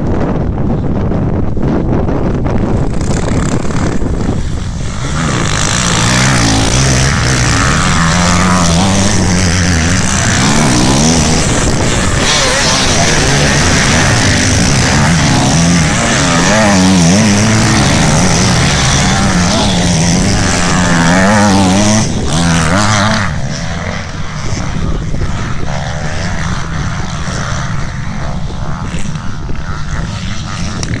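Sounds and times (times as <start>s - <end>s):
rough engine noise: 0.0s - 31.0s
motorcycle engines revving hard: 1.5s - 31.0s.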